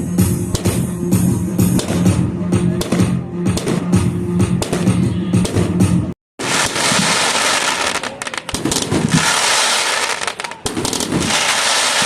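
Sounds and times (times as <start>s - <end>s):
low fireworks bangs: 0.5s - 12.0s
fireworks crackling: 6.4s - 12.0s.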